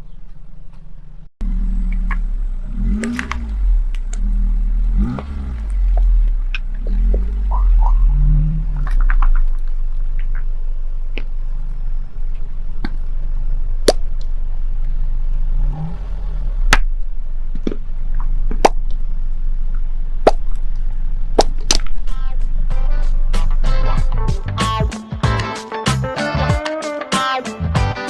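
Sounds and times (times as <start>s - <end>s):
tyre rolling low rumble: 0.1s - 24.8s
objects cracking under wheel: 1.9s - 4.3s, 5.0s - 15.0s, 16.6s - 22.6s.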